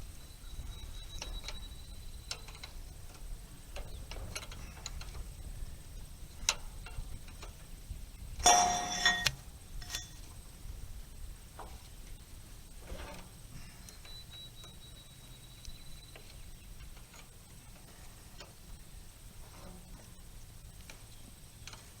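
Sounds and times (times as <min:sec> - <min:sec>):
metallic ticks and clicks: 0:08.4 - 0:10.2
ringing metal clatter: 0:08.4 - 0:10.2.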